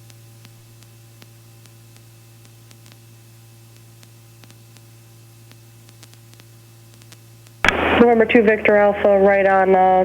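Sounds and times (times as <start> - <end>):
low hum: 7.6 - 10.0.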